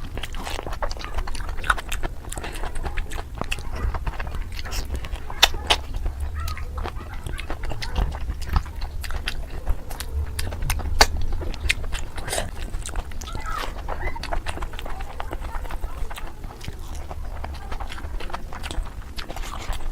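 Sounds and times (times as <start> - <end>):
chewing with wet mouth smacks: 0.0 - 19.9
low rumble: 1.6 - 15.4.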